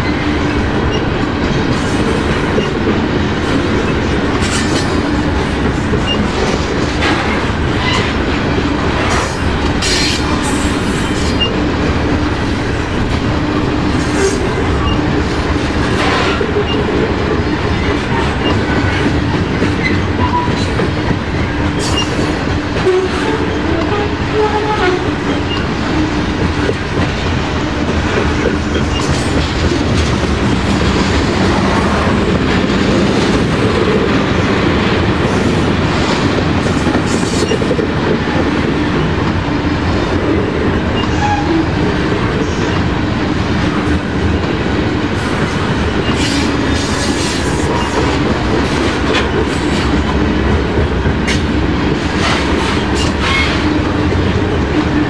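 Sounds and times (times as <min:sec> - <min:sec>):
railcars rumbling past: 0:00.0 - 0:55.0.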